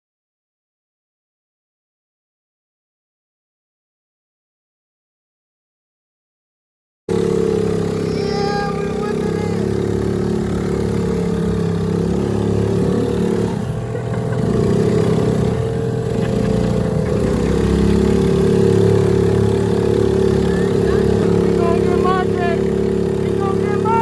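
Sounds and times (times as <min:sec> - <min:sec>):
small boat engine running: 0:07.1 - 0:24.0.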